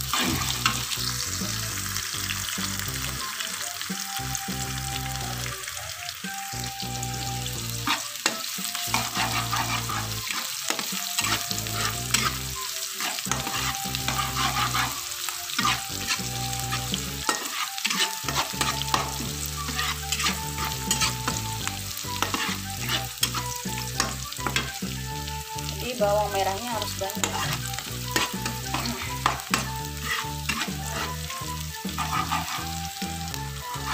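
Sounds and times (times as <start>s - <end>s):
metal spatula scraping a wok: 0.0s - 1.2s, 7.8s - 24.8s, 26.4s - 33.0s, 33.7s - 33.9s
shallots sizzling in hot oil: 0.0s - 33.9s.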